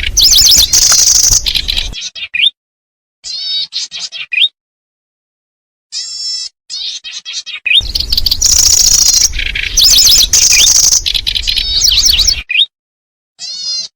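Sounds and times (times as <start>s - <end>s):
bird chirps and buzzy trills: 0.0s - 2.0s, 7.8s - 12.5s
noisy rumble: 0.0s - 2.0s, 7.8s - 12.4s.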